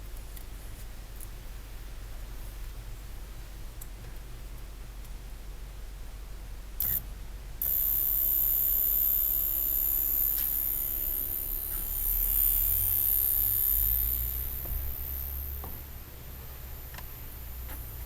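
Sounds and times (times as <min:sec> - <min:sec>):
electric fuel pump whining: 0:06.8 - 0:07.0, 0:07.6 - 0:18.0.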